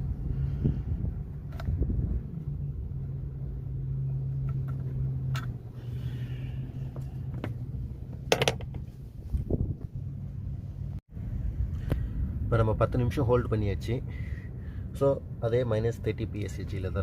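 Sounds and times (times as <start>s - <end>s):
low mechanical hum: 0.0s - 13.1s
sharp clicks and knocks: 7.0s - 8.9s.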